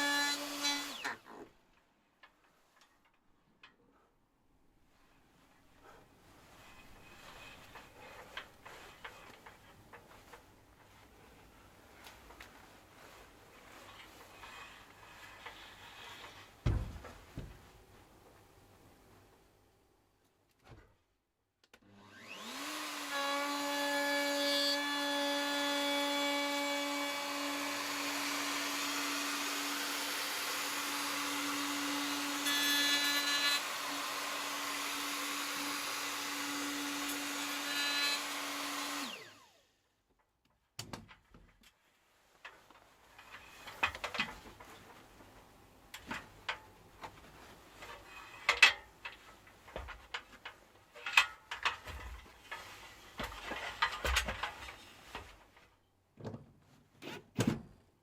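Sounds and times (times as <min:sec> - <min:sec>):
clicks and knocks of handling: 0:45.9 - 0:57.6.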